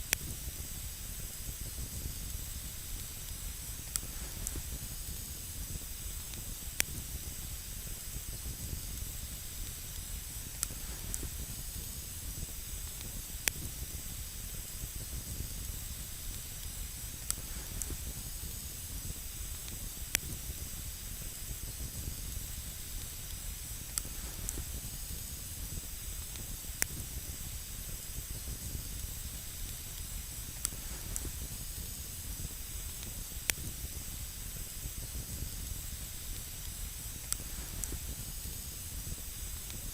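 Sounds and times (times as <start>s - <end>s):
campfire hissing and crackling: 0.0s - 39.9s.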